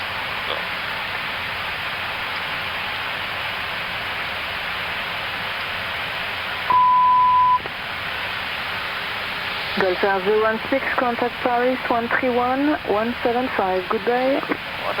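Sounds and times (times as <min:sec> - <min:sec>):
air-conditioning noise: 0:00.0 - 0:15.0
single steady beep: 0:06.7 - 0:07.6
cockpit airflow rushing: 0:08.0 - 0:14.9.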